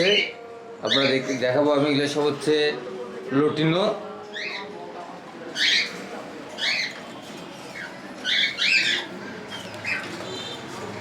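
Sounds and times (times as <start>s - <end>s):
cockatiels chirping: 5.6s - 6.0s, 6.6s - 7.0s, 7.7s - 10.2s.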